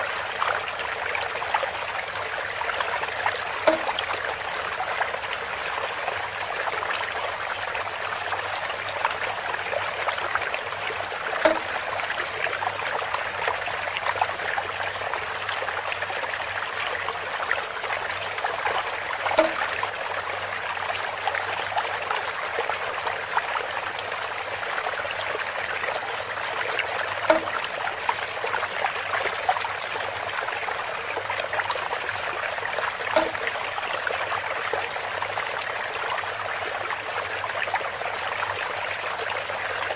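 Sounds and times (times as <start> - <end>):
water trickling through bamboo spout: 0.0 - 39.9
pitched water plops: 3.4 - 4.5, 11.0 - 12.4, 18.9 - 19.9, 27.2 - 28.3, 33.1 - 33.6.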